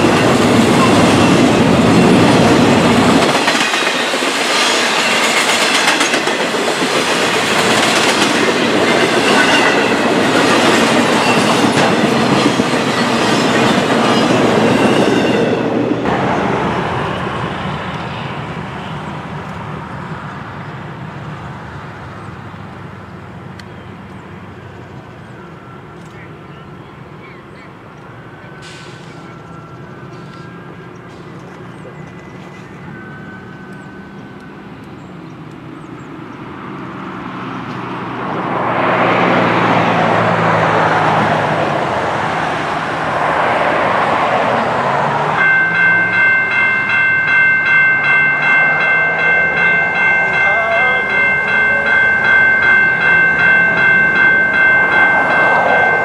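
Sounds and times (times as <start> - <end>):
freight train wheels clattering: 0.0 - 16.3.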